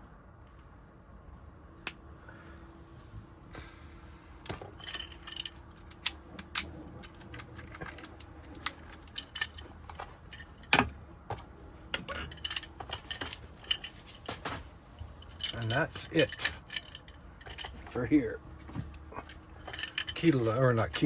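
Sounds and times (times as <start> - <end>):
keys and lock parts clinking: 4.4 - 21.0.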